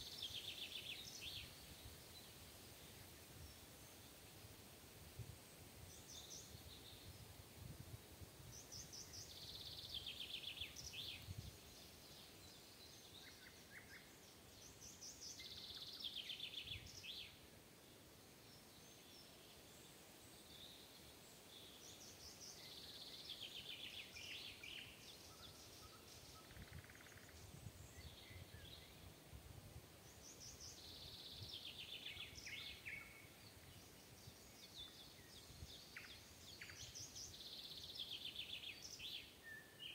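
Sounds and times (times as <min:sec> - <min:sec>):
outdoor background hiss: 0:00.0 - 0:39.9.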